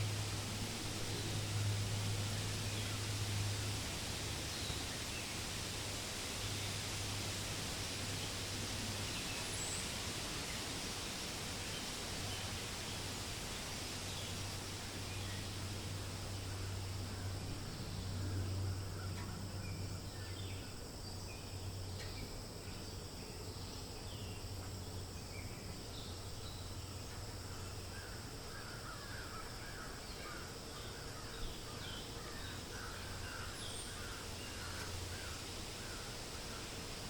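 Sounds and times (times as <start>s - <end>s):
wild birds chirping: 11.6s - 37.0s.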